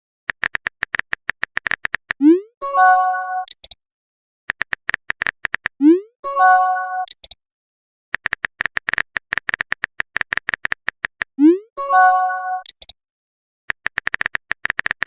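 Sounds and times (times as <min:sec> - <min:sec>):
phone keyboard typing taps: 0:00.3 - 0:02.2, 0:04.5 - 0:05.8, 0:08.2 - 0:11.4, 0:13.7 - 0:15.0.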